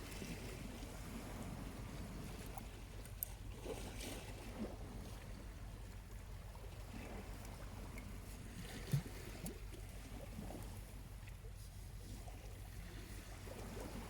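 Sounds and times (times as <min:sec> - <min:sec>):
small waves washing on shore: 0:00.0 - 0:14.0.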